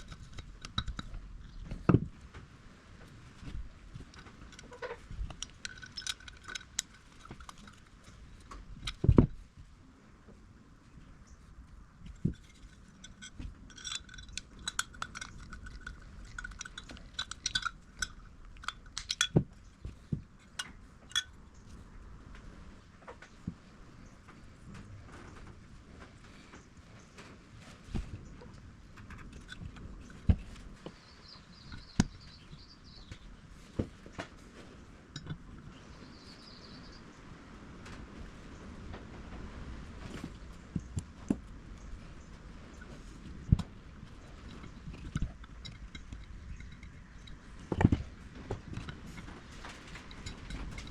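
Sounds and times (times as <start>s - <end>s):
small metal parts clinking: 0.0s - 1.9s, 4.0s - 9.2s, 12.1s - 21.4s, 44.0s - 50.9s
small birds chirping: 29.8s - 33.8s, 35.6s - 37.4s.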